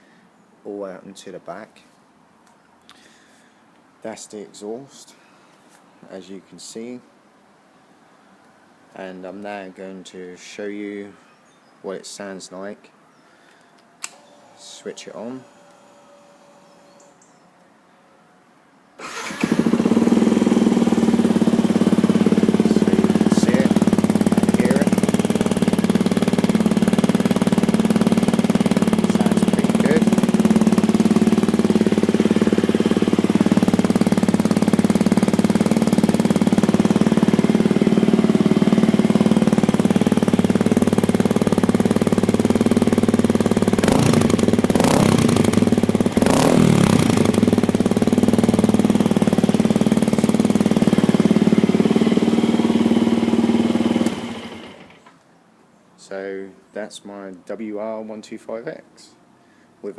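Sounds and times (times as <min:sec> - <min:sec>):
sharp engine revving bursts: 0:19.0 - 0:55.0
motorcycle engine starting and idling: 0:19.0 - 0:55.2.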